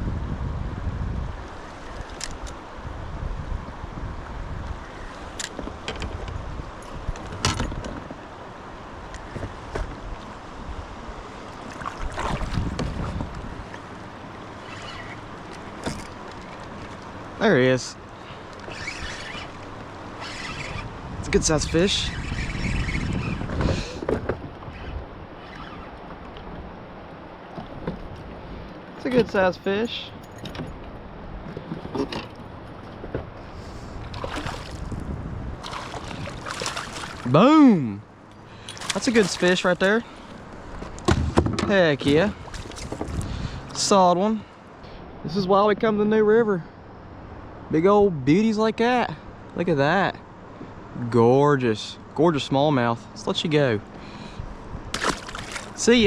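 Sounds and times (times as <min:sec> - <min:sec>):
water noise around kayak: 0:00.0 - 0:46.0, 0:51.9 - 0:56.0
wind: 0:00.0 - 0:56.0
water splashing: 0:11.3 - 0:17.4, 0:33.9 - 0:37.6, 0:38.5 - 0:40.4, 0:42.0 - 0:43.8, 0:54.9 - 0:56.0
knocks on kayak: 0:41.0 - 0:41.8.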